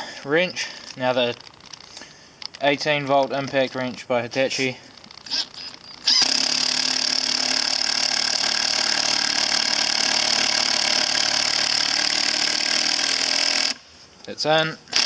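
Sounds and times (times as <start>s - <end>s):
impact wrench driving screw: 5.0s - 13.8s.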